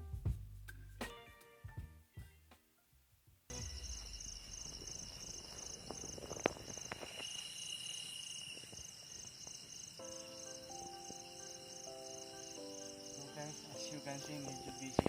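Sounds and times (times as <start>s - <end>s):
high-pitched insect trill: 3.5s - 15.0s
insects chirping: 3.5s - 15.0s.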